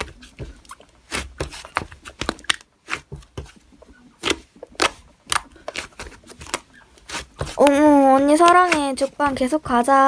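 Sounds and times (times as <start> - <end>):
slime squished by hand: 4.2 - 9.3.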